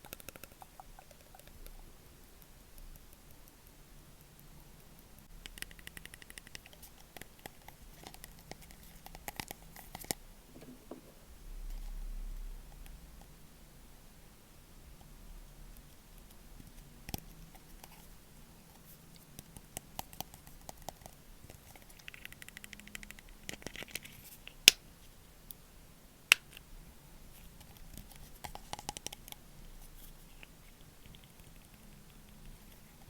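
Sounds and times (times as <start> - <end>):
light tapping on small objects: 2.4 - 11.2
crackly scratching: 5.6 - 11.9, 16.6 - 25.2, 27.3 - 33.0.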